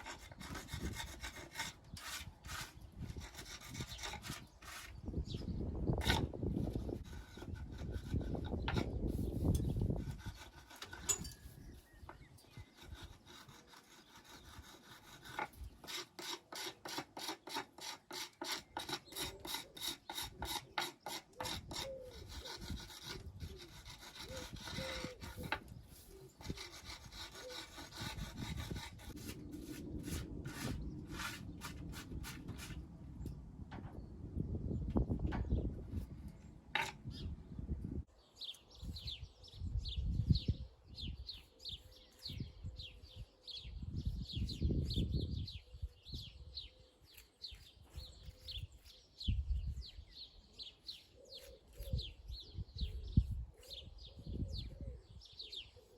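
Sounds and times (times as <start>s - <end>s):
hand tool scraping stone: 0.0s - 5.0s, 6.0s - 32.8s, 36.8s - 37.1s, 50.9s - 52.2s.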